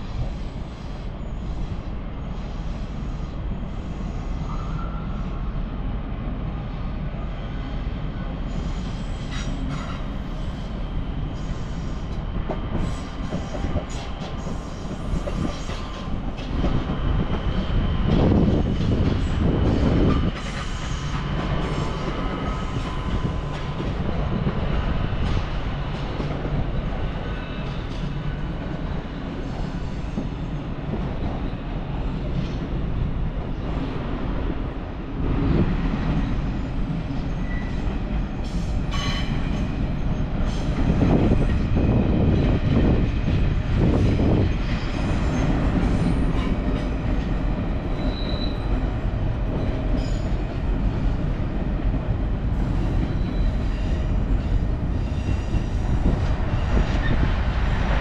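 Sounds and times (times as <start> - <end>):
train rumbling on tracks: 0.0 - 58.0
high wheel squeals: 48.0 - 48.7.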